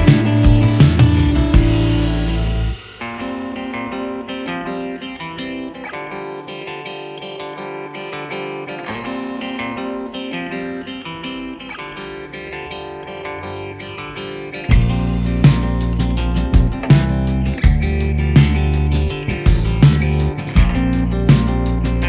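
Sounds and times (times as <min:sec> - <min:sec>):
plucked guitar notes: 0:00.0 - 0:22.0.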